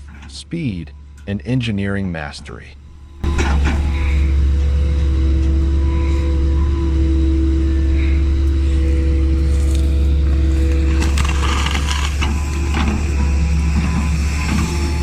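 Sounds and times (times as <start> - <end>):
diesel engine running under load: 2.6 - 15.0.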